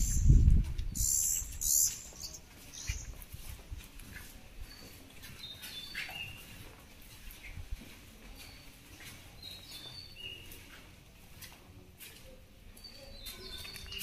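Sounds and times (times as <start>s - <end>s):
birds chirping: 0.0s - 3.2s, 4.6s - 6.8s, 8.3s - 10.9s, 12.8s - 14.0s.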